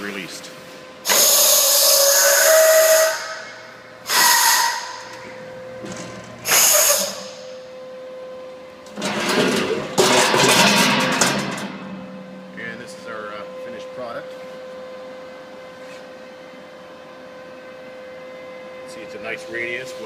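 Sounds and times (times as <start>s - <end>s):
pneumatic clamps hissing air: 1.0s - 3.4s, 4.0s - 5.0s, 6.4s - 7.4s.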